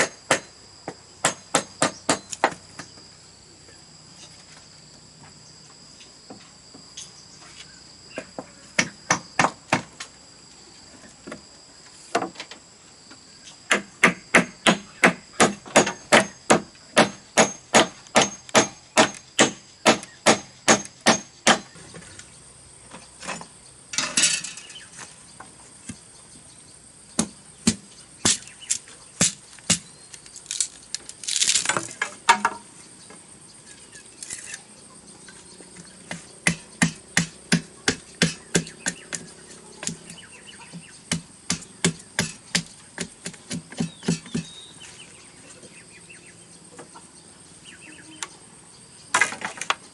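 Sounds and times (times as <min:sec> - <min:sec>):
sharp strikes on bamboo: 0:00.0 - 0:00.5, 0:01.2 - 0:02.6, 0:08.8 - 0:10.0, 0:13.7 - 0:21.8, 0:27.2 - 0:29.9, 0:36.1 - 0:39.2, 0:40.8 - 0:44.5
insects trilling: 0:00.0 - 0:49.9.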